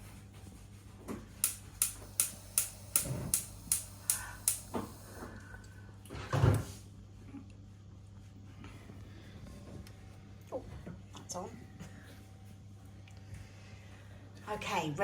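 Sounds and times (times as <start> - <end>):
sharp clicks: 1.4 - 5.2.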